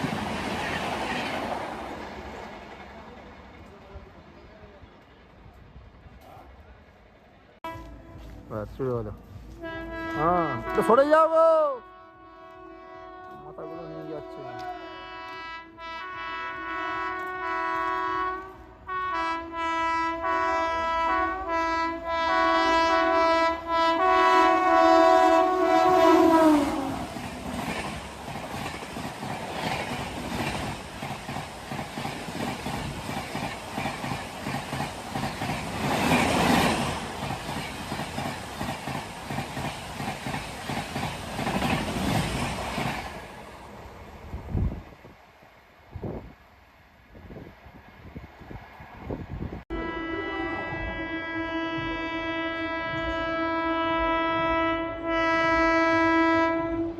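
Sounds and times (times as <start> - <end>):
train coaches clattering past: 0.0 - 11.3, 11.9 - 44.5
train horn blasts: 7.6 - 8.6, 9.5 - 27.3, 49.7 - 56.9.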